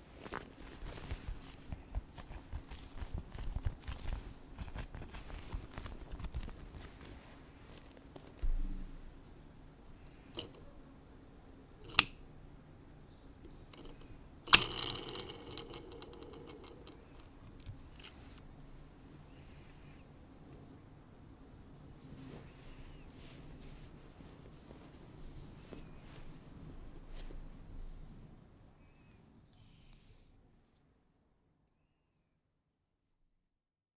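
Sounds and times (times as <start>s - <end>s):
crickets trilling: 0.0s - 30.8s
low background noise: 0.0s - 31.0s.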